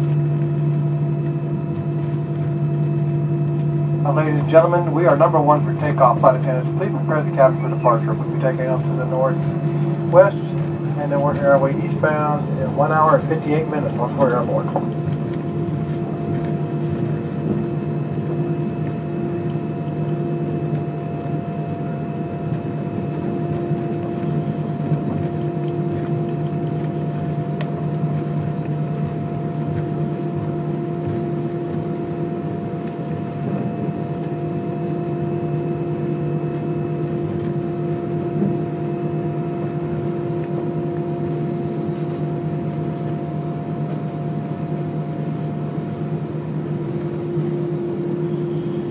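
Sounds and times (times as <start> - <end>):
aircraft cabin engine hum: 0.0 - 48.9
steady tones: 3.8 - 20.3.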